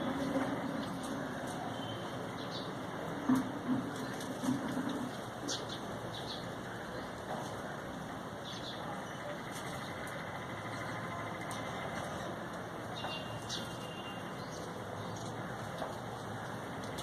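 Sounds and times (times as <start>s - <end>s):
low rumble of traffic: 0.0s - 17.0s
high bird chirps: 13.0s - 14.7s.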